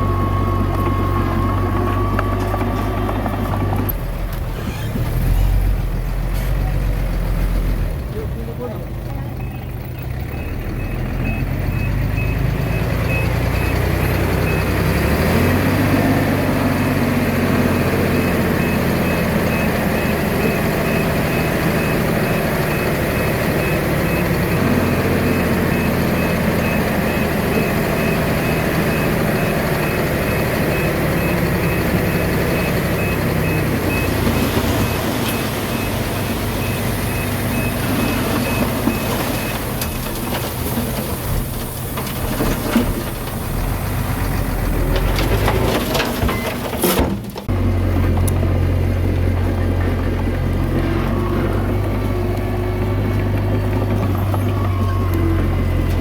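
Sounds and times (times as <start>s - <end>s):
reversing alarm beeping: 0.0s - 2.5s, 9.2s - 39.8s, 54.0s - 56.0s
heavy diesel engine under load: 0.0s - 56.0s.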